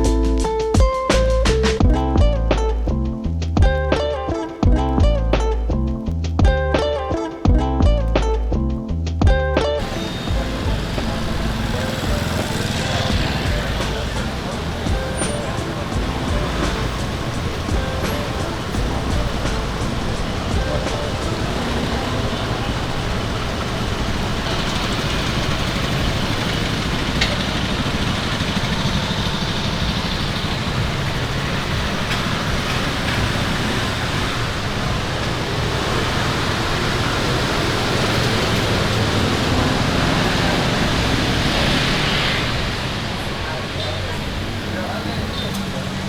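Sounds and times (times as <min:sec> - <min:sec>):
passing cars and motorbikes: 0:09.5 - 0:46.0
faint voices: 0:09.8 - 0:46.0.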